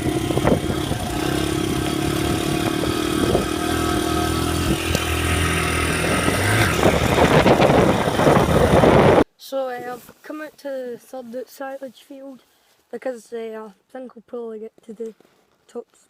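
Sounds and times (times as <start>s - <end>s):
motorcycle engine at low revs: 0.0s - 9.2s.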